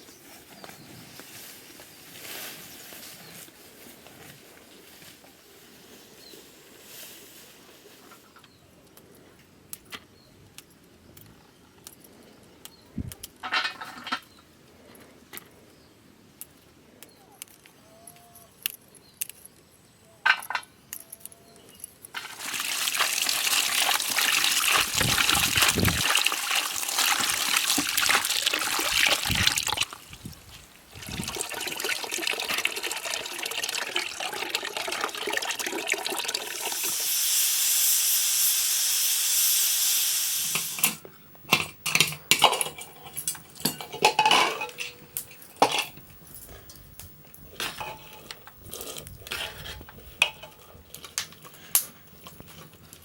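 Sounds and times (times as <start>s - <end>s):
water running: 22.2s - 41.0s
pots and utensils clicking: 40.5s - 46.0s, 47.6s - 52.8s.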